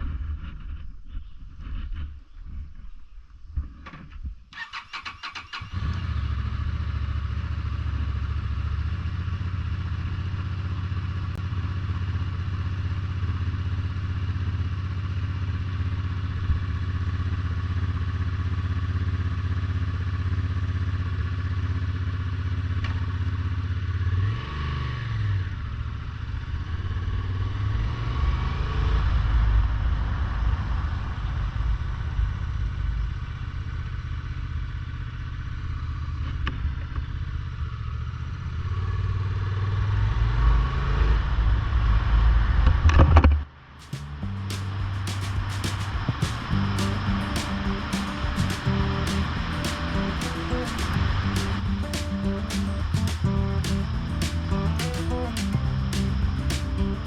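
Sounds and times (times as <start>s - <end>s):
motorcycle starter cranking: 4.6s - 6.1s
motorcycle engine idling and revving: 5.3s - 42.7s, 43.8s - 57.0s.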